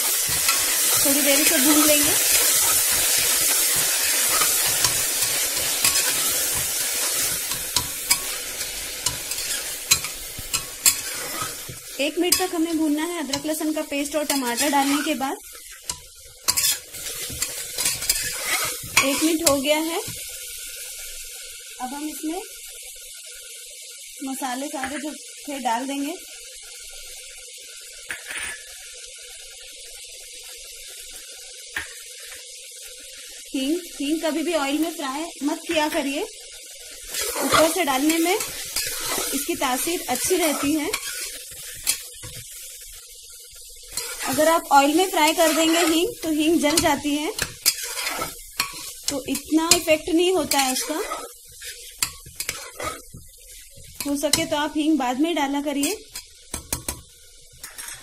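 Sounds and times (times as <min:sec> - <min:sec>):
spatula scraping a pot: 0:00.0 - 0:13.6, 0:14.2 - 0:19.7, 0:37.0 - 0:42.4, 0:43.9 - 0:54.5
food sizzling in hot oil: 0:00.0 - 0:58.0.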